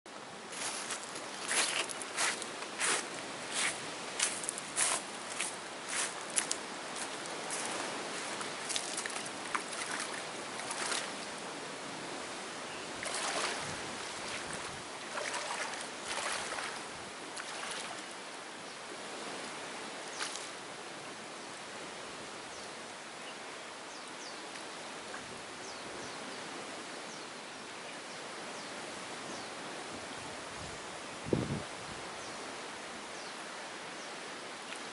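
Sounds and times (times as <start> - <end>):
water rushing: 0.1 - 23.9
sharp knocks and splashes: 8.6 - 11.2, 13.0 - 18.1.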